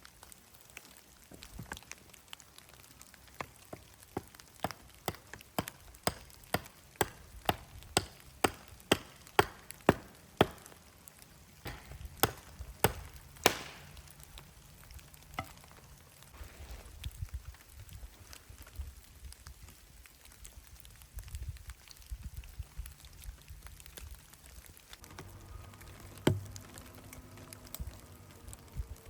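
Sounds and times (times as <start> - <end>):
sharp chopping knocks: 4.2 - 10.8, 11.7 - 13.9, 26.2 - 26.5.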